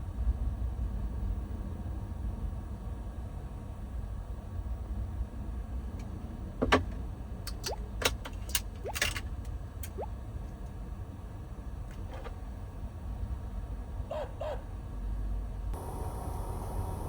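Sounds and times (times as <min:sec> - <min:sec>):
steady low rumble: 0:15.3 - 0:17.0.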